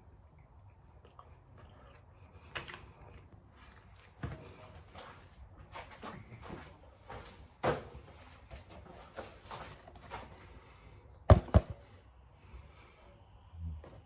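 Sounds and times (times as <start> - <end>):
loud sharp knocks: 11.3 - 11.8.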